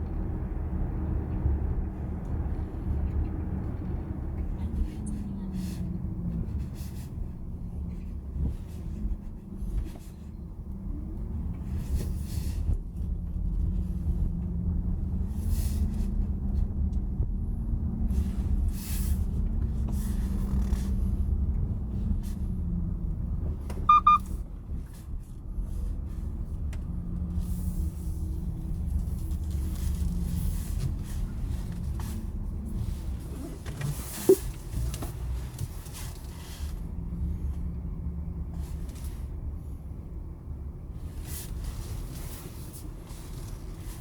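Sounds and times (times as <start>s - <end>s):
road and tyre rumble: 0.0s - 44.0s
double electronic beep: 23.9s - 24.2s.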